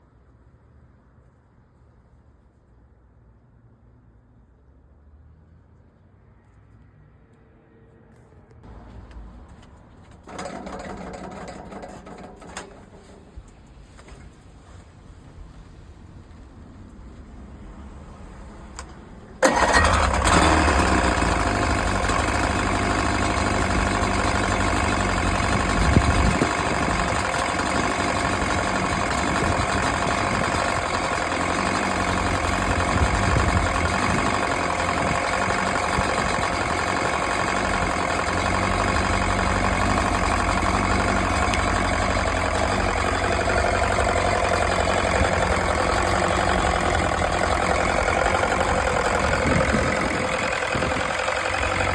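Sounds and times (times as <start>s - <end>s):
outboard motor starting and running: 10.2s - 13.3s, 19.4s - 51.9s.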